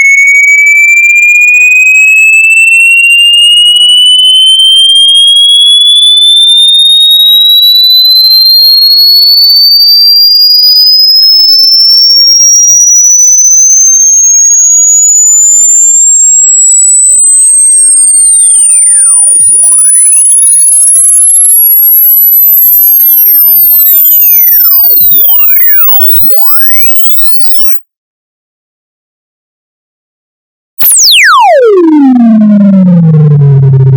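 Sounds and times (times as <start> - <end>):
rising pure test tone: 13.2 - 27.8, 30.8 - 33.9.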